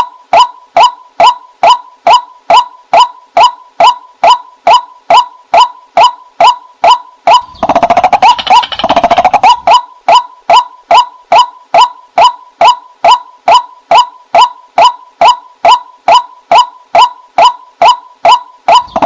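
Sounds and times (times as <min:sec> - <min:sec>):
waterhen calls: 0:07.3 - 0:11.5
fast rattling bird chatter: 0:07.4 - 0:09.7, 0:18.8 - 0:19.0.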